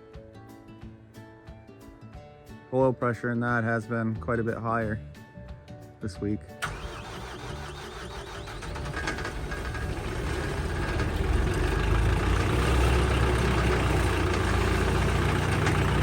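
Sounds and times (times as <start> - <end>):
diesel engine idling: 6.6 - 16.0.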